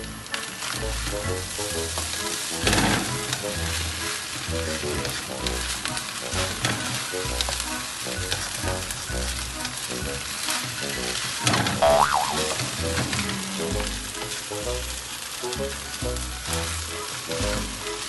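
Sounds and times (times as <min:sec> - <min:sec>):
background music: 0:00.0 - 0:18.0
fried rice sizzling in a pan: 0:00.0 - 0:18.0.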